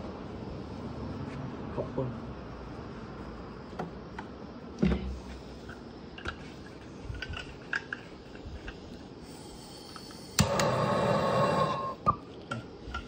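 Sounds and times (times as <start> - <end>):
low background hum: 0.0 - 13.0
tools and metal parts clicking: 6.2 - 8.8.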